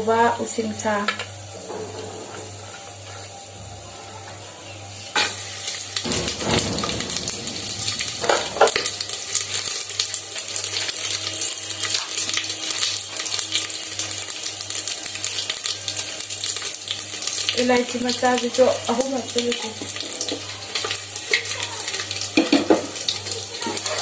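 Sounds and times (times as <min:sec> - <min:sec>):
spices sizzling in hot oil: 0:04.2 - 0:24.0
pan knocks: 0:06.1 - 0:09.2.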